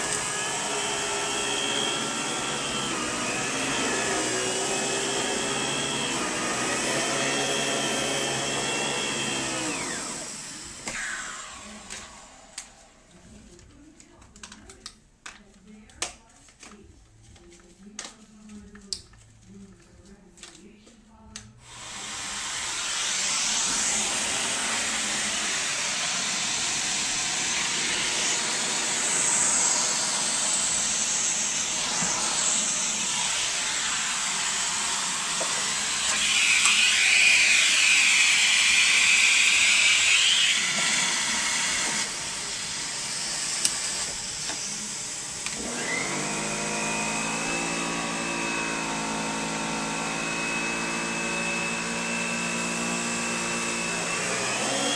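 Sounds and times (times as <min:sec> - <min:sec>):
steady whining tone: 0:00.0 - 0:13.0.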